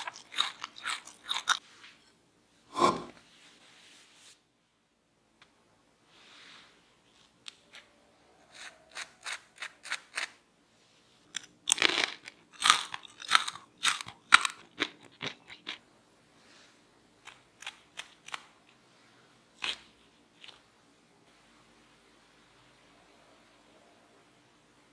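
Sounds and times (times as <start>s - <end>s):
crunching fried potatoes: 0.0s - 1.6s, 7.5s - 10.4s, 11.2s - 15.9s, 17.1s - 18.8s, 19.5s - 20.8s.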